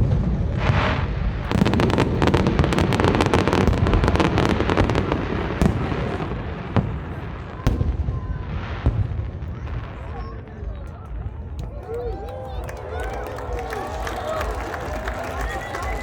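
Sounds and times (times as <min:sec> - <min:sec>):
fireworks sharp bangs: 0:00.0 - 0:11.7
fireworks crackling: 0:00.0 - 0:16.0.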